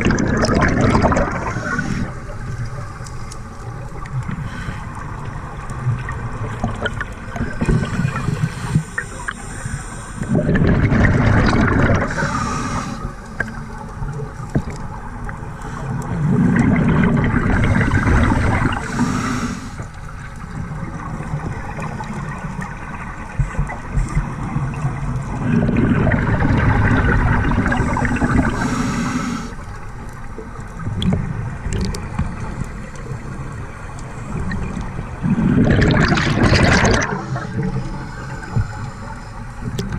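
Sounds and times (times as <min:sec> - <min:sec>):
bubbly gurgling exhaled air: 0:00.0 - 0:03.1, 0:03.7 - 0:14.9, 0:15.8 - 0:19.6, 0:20.4 - 0:29.8, 0:30.8 - 0:39.9
regulator hiss: 0:07.8 - 0:10.3, 0:12.1 - 0:13.4, 0:18.7 - 0:19.9, 0:27.8 - 0:29.7.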